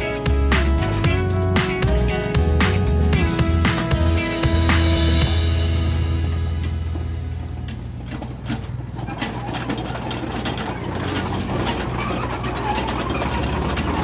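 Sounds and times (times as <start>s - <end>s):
excavator diesel engine hum: 0.0s - 14.0s
metallic clicks and clanks: 7.4s - 14.0s.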